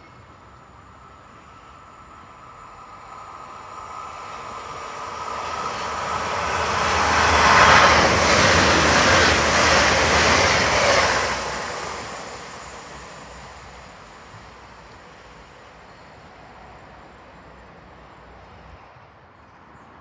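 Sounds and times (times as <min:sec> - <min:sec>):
train passing: 0:00.0 - 0:20.0.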